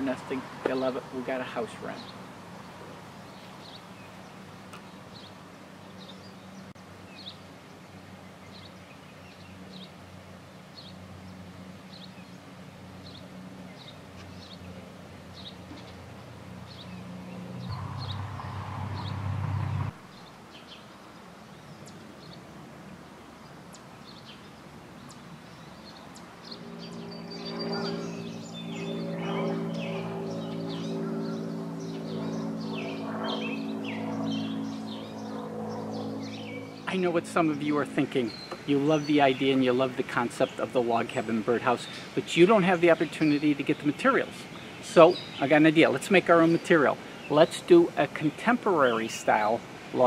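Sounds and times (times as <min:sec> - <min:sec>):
low droning tone: 0:17.1 - 0:20.0, 0:26.8 - 0:38.0
rushing noise: 0:17.5 - 0:20.0
wren chip calls: 0:23.7 - 0:49.6.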